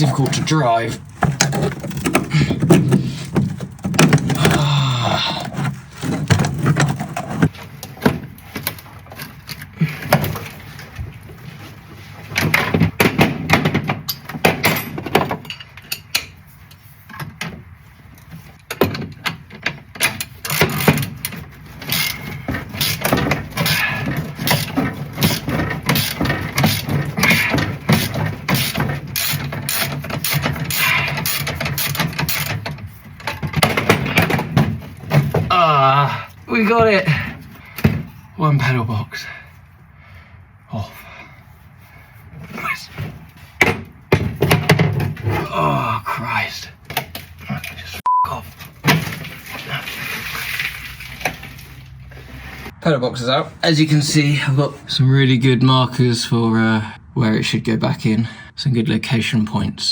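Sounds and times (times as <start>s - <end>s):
hand tools knocking and scraping metal: 0.0s - 38.7s, 42.4s - 45.7s.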